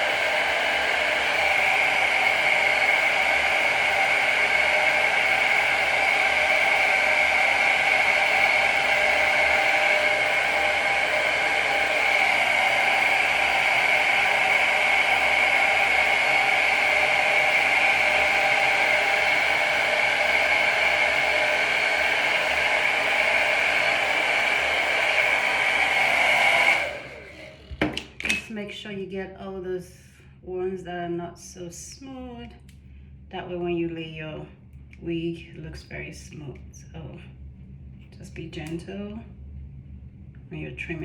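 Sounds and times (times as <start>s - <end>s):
hair dryer blowing: 0.0s - 28.2s.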